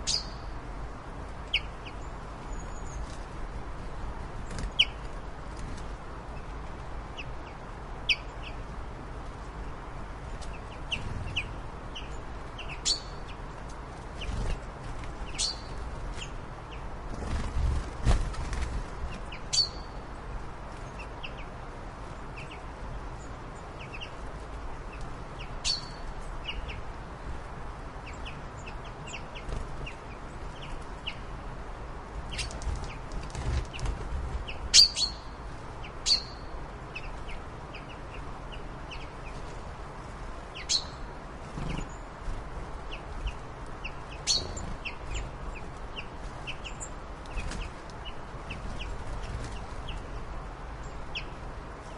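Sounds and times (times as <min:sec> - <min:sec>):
birds chirping: 0:00.0 - 0:00.7, 0:04.4 - 0:05.2, 0:09.7 - 0:27.0, 0:32.2 - 0:39.6, 0:40.3 - 0:51.9
steady low rumble: 0:00.0 - 0:34.7.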